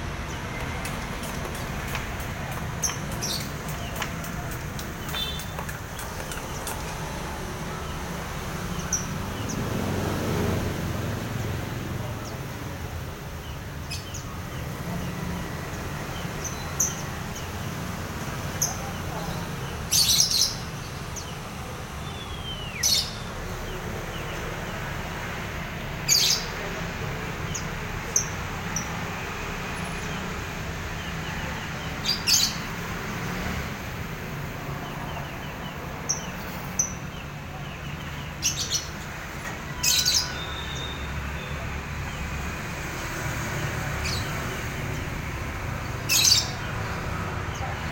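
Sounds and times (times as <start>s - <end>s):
small bird chirping: 5.0s - 6.9s.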